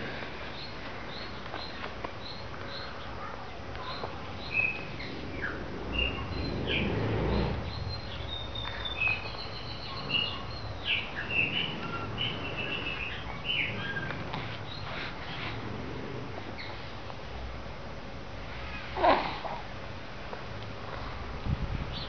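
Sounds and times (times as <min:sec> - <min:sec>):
small birds chirping: 0:00.1 - 0:16.9
low rumble: 0:04.2 - 0:16.6.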